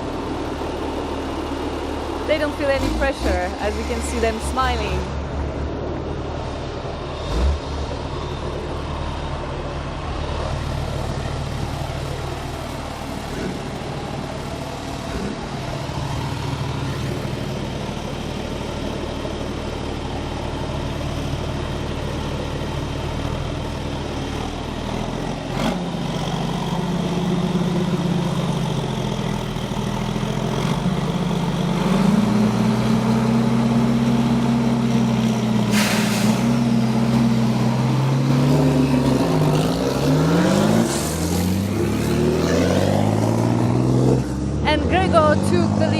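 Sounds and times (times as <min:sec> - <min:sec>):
truck diesel engines revving: 0:00.0 - 0:45.9
short hiss: 0:35.7 - 0:36.6.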